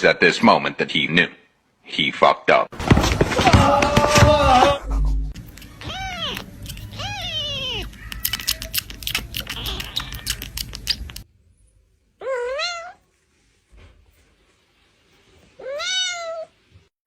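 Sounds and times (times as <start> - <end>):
clattering and scuffling knocks: 2.8 - 4.8
cat meowing: 5.6 - 11.2, 12.2 - 13.0, 15.6 - 16.6.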